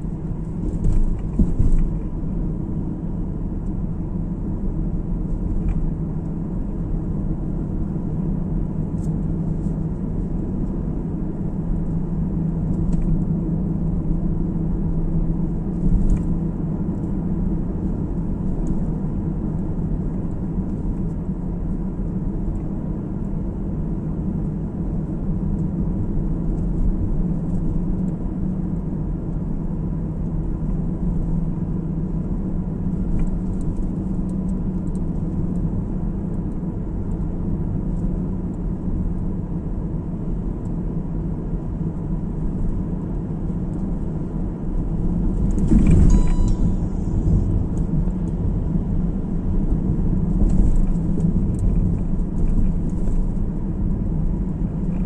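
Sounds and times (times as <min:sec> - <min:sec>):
car road noise from inside: 0:00.0 - 0:55.0
short beep-like tone: 0:45.9 - 0:47.5.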